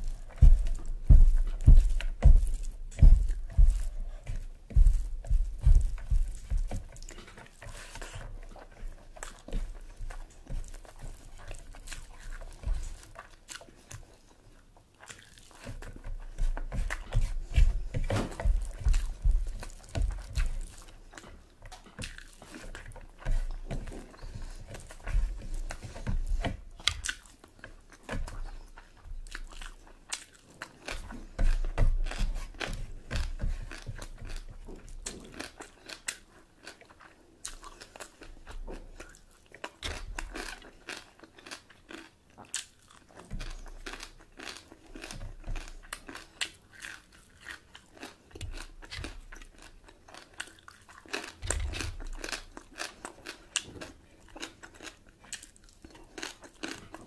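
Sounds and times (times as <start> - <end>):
person chewing crunchy food: 0.0 - 57.0
low thumps: 0.1 - 6.8.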